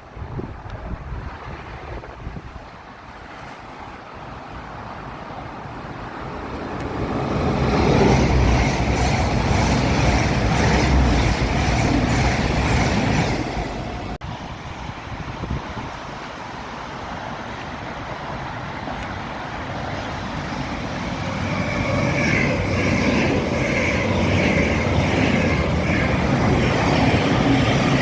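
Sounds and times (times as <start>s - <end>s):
train wheels clattering on rail: 6.5s - 14.2s, 21.1s - 28.0s.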